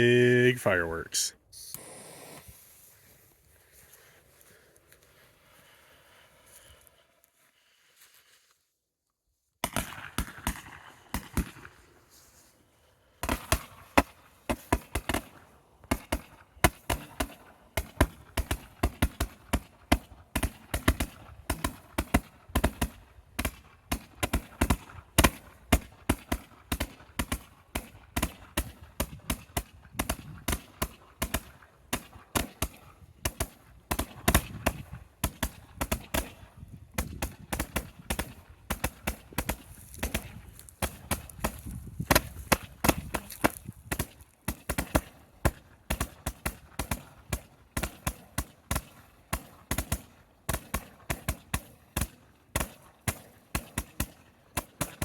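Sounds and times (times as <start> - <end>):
firework hiss: 1.6 - 2.8
roman candle firing shots: 13.2 - 41.5.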